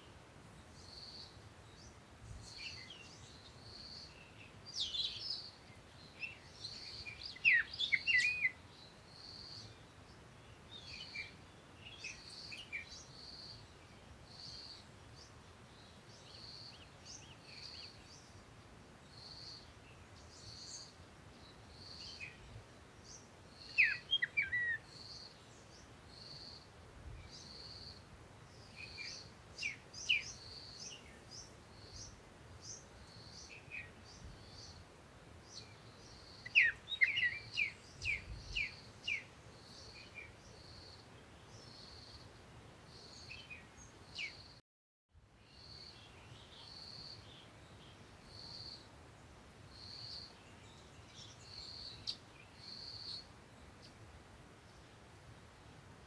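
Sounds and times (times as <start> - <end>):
faint background hiss: 0.0 - 44.6, 45.2 - 56.0
birds chirping: 1.0 - 8.6, 19.1 - 26.5, 35.4 - 42.1.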